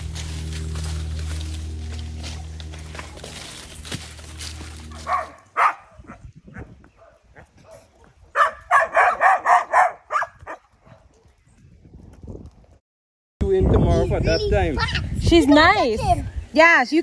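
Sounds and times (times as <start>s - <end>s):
dog barking: 4.9s - 11.1s.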